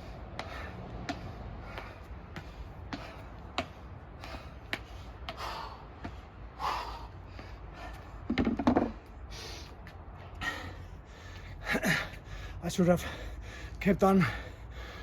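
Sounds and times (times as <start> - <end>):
man breathing hard: 0.0 - 8.4, 9.0 - 15.0.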